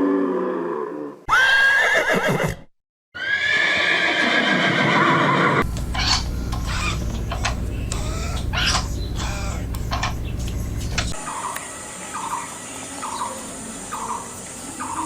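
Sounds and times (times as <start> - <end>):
horse whinnying: 1.3 - 7.0
low hum with noisy bursts: 5.6 - 11.2.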